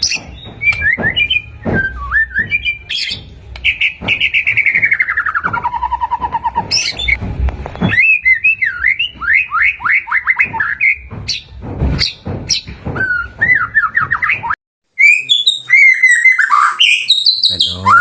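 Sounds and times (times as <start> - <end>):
bird singing whistled phrases: 13.0 - 18.0.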